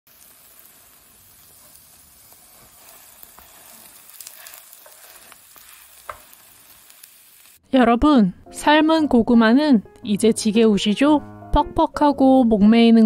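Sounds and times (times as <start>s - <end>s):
cheese sizzling in a frying pan: 0.1s - 7.6s.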